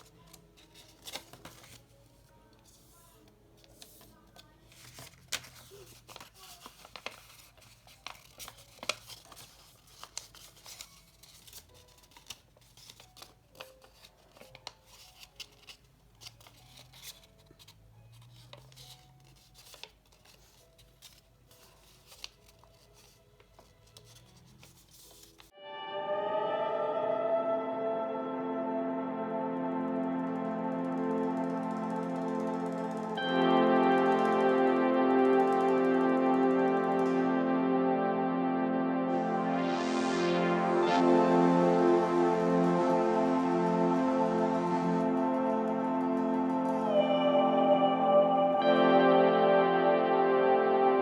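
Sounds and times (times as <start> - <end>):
paper rustling: 0.0 - 25.5
music: 0.0 - 51.0
paper crease snaps: 3.7 - 25.5.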